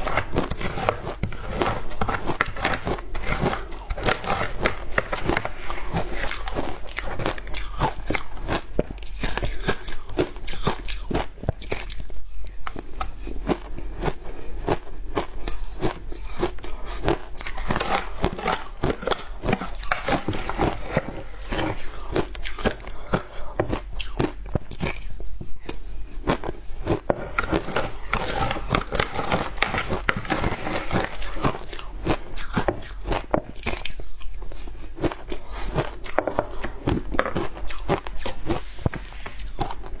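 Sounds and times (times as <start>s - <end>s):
crunching frozen ice: 0.0s - 11.8s, 12.7s - 24.8s, 26.3s - 34.2s.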